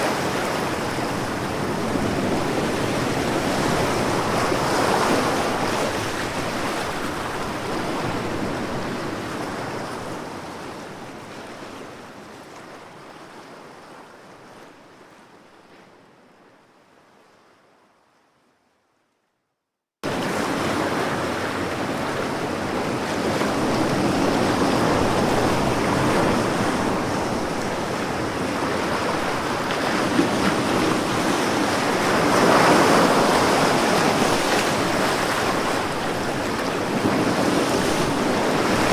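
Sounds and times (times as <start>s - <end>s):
sea waves washing onto shore: 20.0s - 38.9s.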